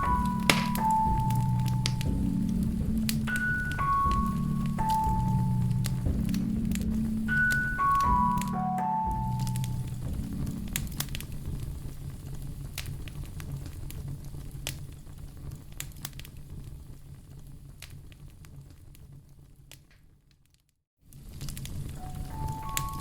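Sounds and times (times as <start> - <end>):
piano note ringing: 0.0 - 11.0, 22.0 - 23.0
wood fire crackling: 0.0 - 23.0.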